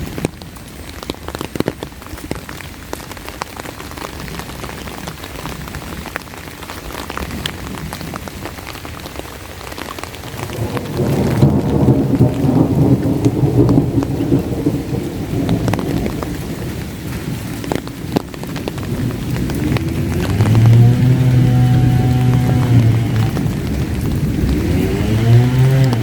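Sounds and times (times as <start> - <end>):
rain with drops ticking: 0.0 - 26.0
thunder rolling: 10.3 - 26.0.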